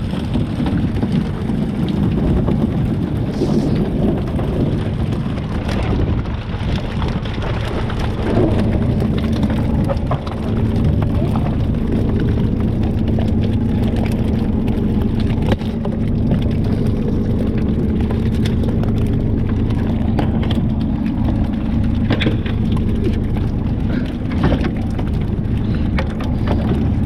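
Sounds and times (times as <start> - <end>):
boat engine humming: 0.0 - 27.0
knocks and clatters: 0.0 - 27.0.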